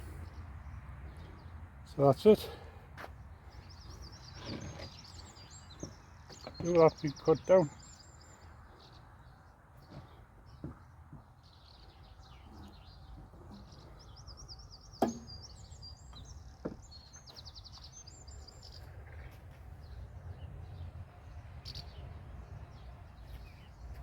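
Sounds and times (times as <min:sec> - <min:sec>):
small birds chirping: 0:00.0 - 0:24.0
sharp knock: 0:15.0 - 0:15.3.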